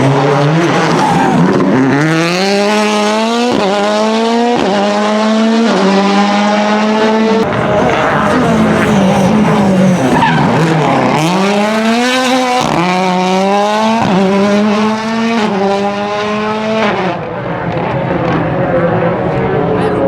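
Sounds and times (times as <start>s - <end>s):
rally car engine accelerating: 0.0s - 19.8s.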